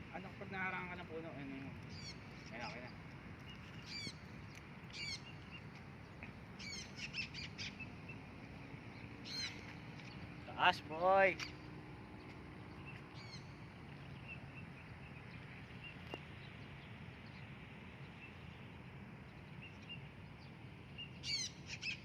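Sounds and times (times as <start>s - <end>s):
distant bird chirps: 0.0s - 22.0s.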